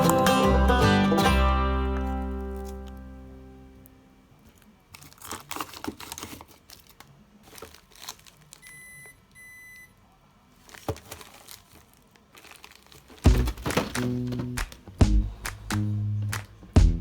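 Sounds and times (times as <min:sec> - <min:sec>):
plastic packaging crinkling: 0:04.4 - 0:08.7, 0:10.5 - 0:16.7
short electronic beeps: 0:08.7 - 0:09.9
clicks and taps: 0:13.3 - 0:17.0.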